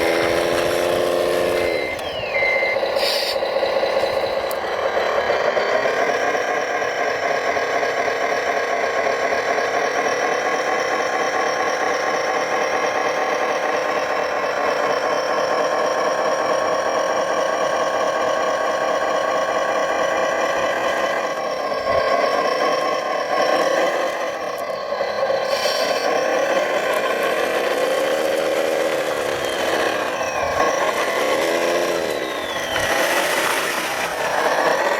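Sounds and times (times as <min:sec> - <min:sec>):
rc models mechanical whine: 0:00.0 - 0:34.9.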